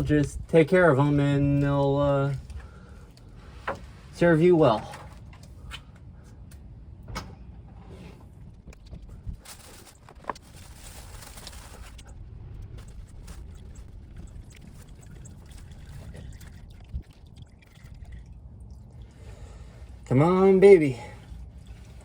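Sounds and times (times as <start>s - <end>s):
low rumble: 6.7s - 19.1s.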